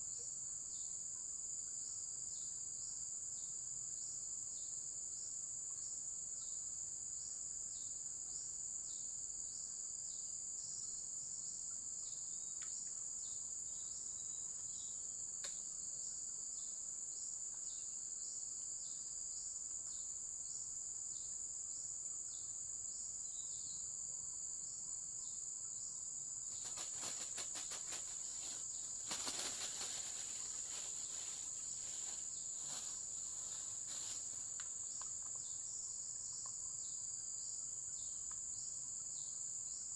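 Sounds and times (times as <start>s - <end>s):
crickets trilling: 7.7s - 39.9s
repeating insect chirp: 25.2s - 37.0s.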